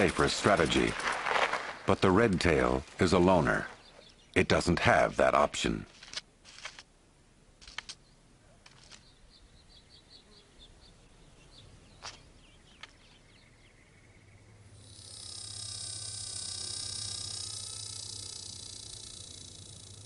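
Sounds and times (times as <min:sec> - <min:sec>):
clicks and rustles: 0:00.0 - 0:03.0, 0:05.8 - 0:06.9, 0:07.6 - 0:08.0, 0:08.6 - 0:09.1
buzzing drone: 0:14.5 - 0:20.0.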